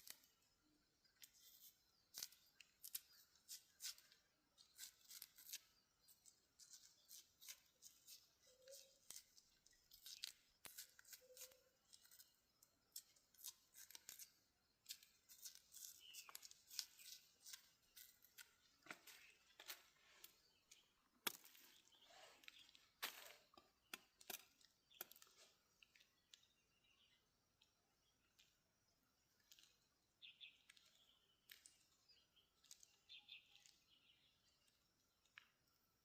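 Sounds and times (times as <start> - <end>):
dry corn husks snapping: 2.1 - 26.5, 30.5 - 31.9.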